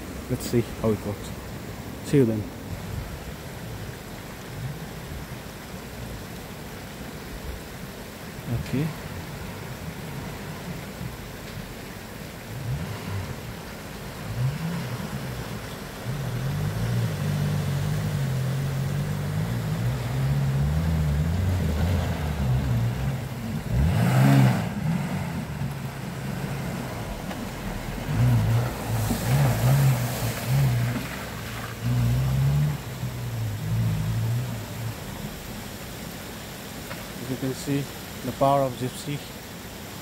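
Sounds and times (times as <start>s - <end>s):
engine revving hard: 12.6s - 25.6s, 28.0s - 31.0s.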